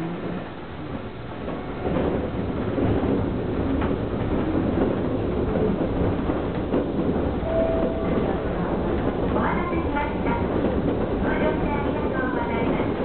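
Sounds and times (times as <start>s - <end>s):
train motors and wheels rumbling: 0.0s - 13.0s
brief higher tone: 7.5s - 8.2s.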